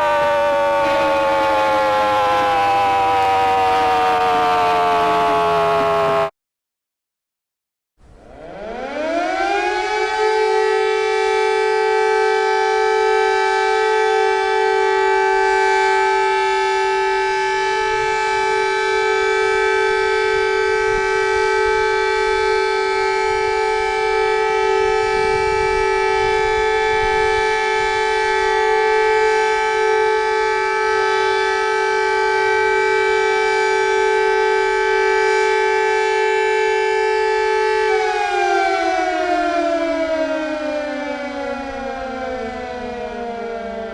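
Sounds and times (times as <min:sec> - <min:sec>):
warning siren: 0:00.0 - 0:06.4, 0:08.0 - 0:43.9.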